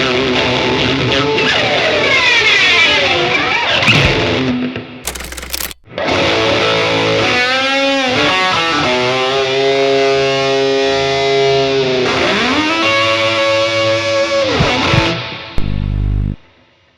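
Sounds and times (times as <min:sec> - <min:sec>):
distorted electric guitar: 0:15.6 - 0:16.4.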